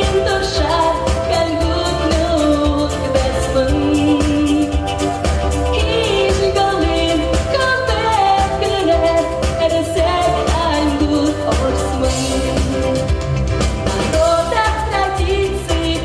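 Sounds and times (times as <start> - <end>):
person singing: 0.0 - 5.1, 5.7 - 13.0, 13.9 - 16.0
pop backing track with beat: 0.0 - 16.0.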